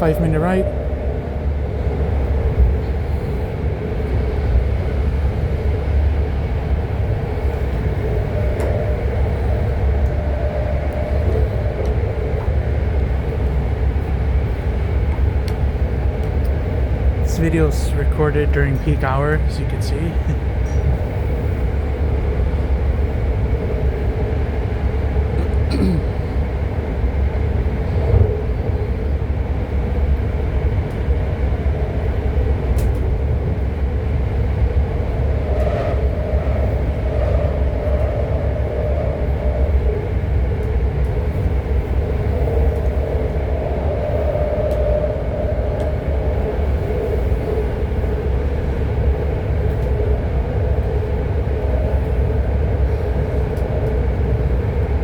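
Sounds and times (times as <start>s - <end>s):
higher tone: 0.0s - 2.2s
droning hum: 0.0s - 55.0s
train wheels rumbling on rail: 0.0s - 55.0s.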